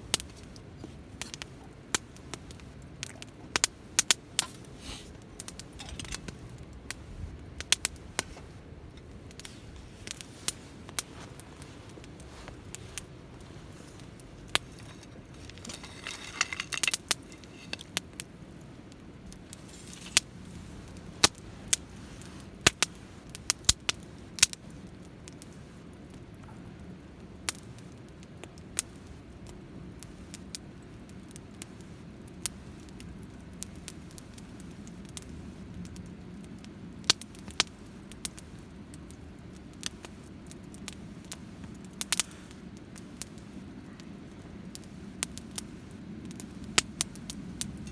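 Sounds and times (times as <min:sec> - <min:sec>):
steady low rumble: 0:00.0 - 0:25.3
wood fire crackling: 0:00.0 - 0:47.9.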